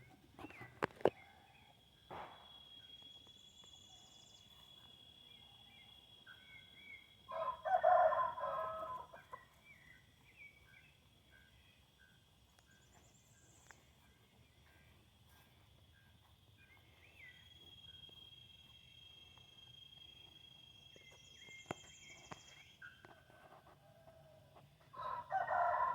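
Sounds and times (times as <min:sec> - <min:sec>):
small birds chirping: 0:00.0 - 0:07.2, 0:08.6 - 0:23.4
rooster crowing: 0:07.3 - 0:09.3, 0:23.5 - 0:25.9.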